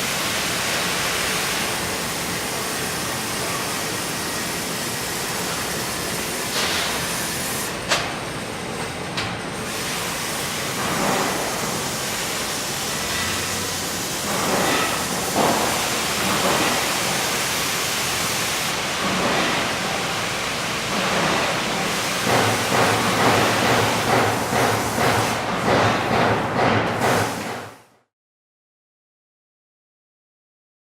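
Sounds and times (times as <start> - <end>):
welding arc hissing: 0.0 - 7.8, 9.6 - 25.5.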